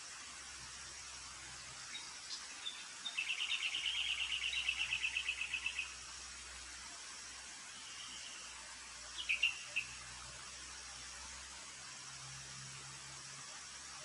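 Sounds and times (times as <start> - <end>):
bird chirping and trilling: 1.9 - 6.0, 9.2 - 10.0.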